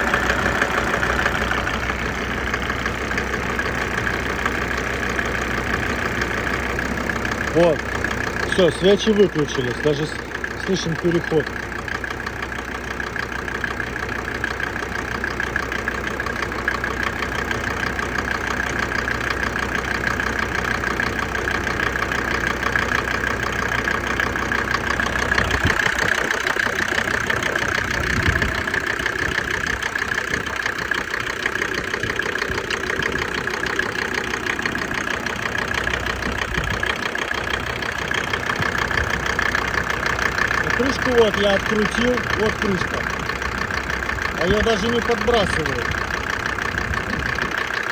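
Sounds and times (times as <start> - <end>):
diesel engine clatter: 0.0 - 47.9.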